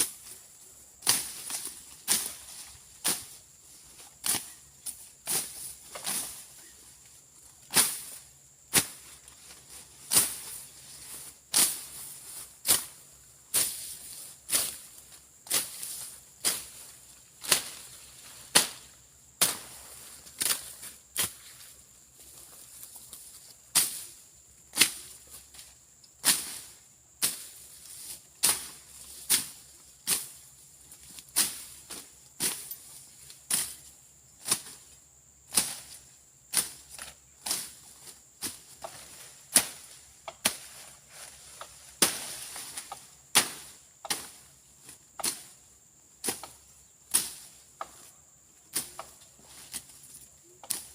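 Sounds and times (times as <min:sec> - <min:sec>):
blade swishing through grass: 0:01.0 - 0:06.5, 0:07.7 - 0:21.7, 0:22.7 - 0:25.3, 0:26.2 - 0:30.4, 0:31.0 - 0:32.9, 0:35.5 - 0:45.6.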